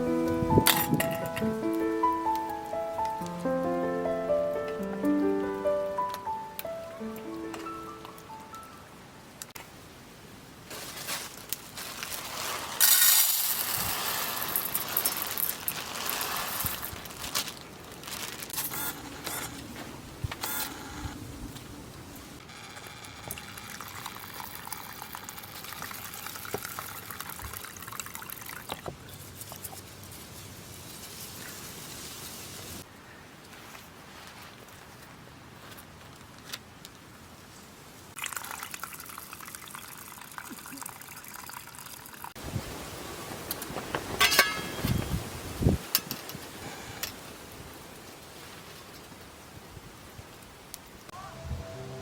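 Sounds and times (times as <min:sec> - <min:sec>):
steady hiss: 0:00.0 - 0:22.5, 0:29.4 - 0:32.9, 0:42.3 - 0:51.6
water pouring into a pot: 0:23.3 - 0:28.7, 0:38.2 - 0:42.3.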